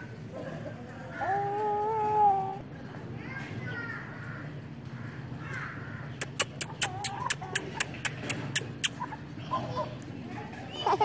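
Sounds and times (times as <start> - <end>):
birds calling: 3.6 - 11.0
sharp clicks: 6.2 - 9.0.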